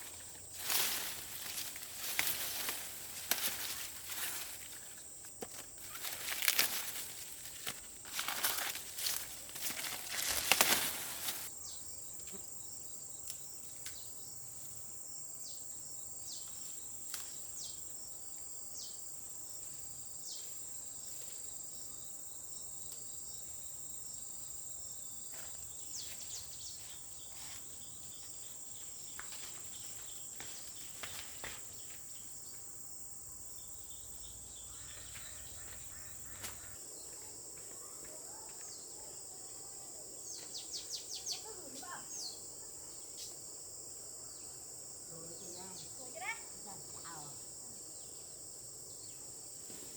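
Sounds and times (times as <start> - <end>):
insects chirring: 0.0 - 49.9
faint clicks and rustles: 0.6 - 11.5
loud rustle: 5.5 - 11.5.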